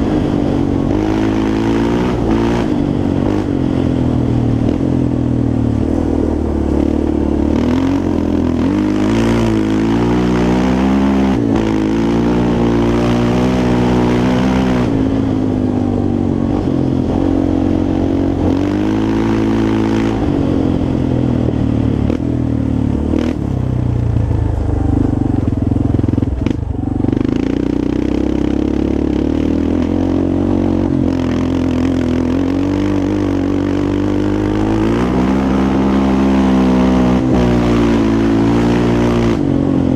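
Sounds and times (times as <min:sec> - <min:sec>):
quad engine revving: 0:00.0 - 0:05.2, 0:05.8 - 0:39.9.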